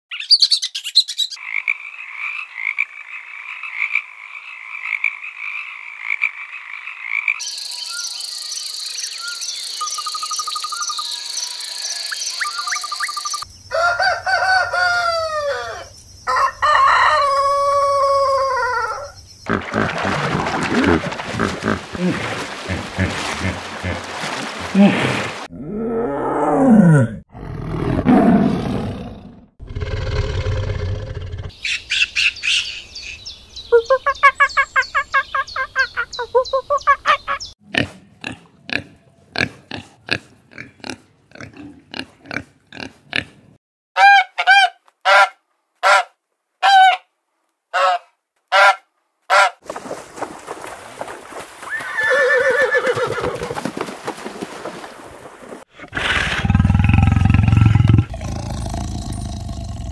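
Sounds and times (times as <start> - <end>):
loud evenly spaced animal calls: 0.1 - 19.5
big cat roaring: 25.5 - 31.5, 55.8 - 59.9.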